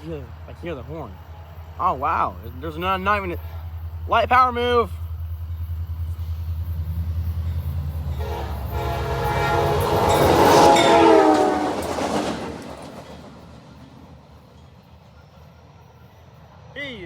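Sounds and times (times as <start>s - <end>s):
diesel locomotive engine rumble: 0.0s - 17.0s
train air horn: 8.2s - 12.3s.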